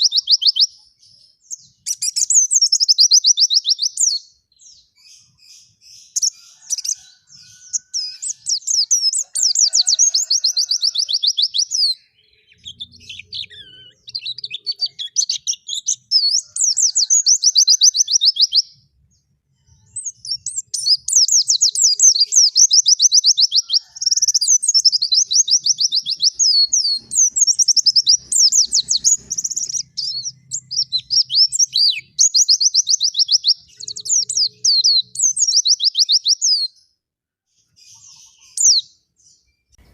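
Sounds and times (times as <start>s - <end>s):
songbird trilling: 0.0s - 0.8s, 1.5s - 18.8s, 19.9s - 36.7s.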